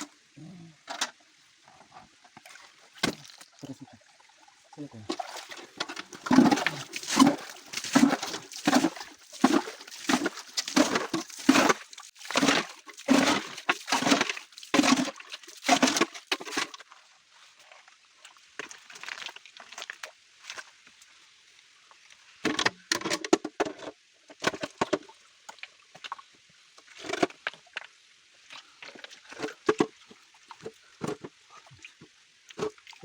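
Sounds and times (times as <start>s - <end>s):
water sloshing: 2.3s - 16.7s
rhythmic splashing in stream water: 2.4s - 16.8s.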